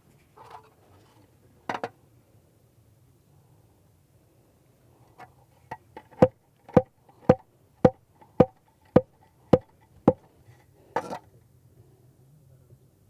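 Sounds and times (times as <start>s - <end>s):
plastic mallet tapping block: 6.1s - 10.2s.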